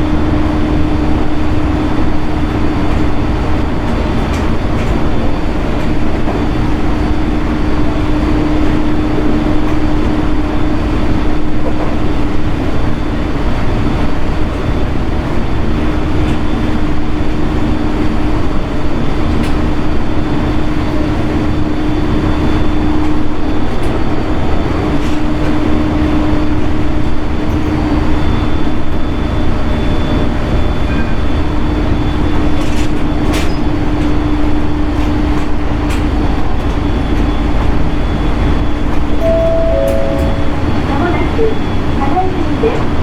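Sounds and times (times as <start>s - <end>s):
train wheels rumbling on rail: 0.0s - 13.0s
low hum: 39.2s - 41.6s.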